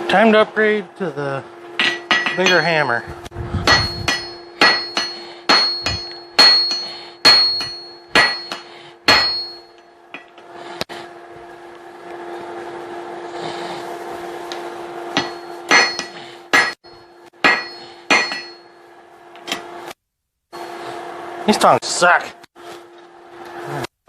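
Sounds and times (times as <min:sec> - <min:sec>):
hammer striking steel on anvil: 0:01.8 - 0:03.0, 0:03.6 - 0:10.4, 0:15.1 - 0:18.8.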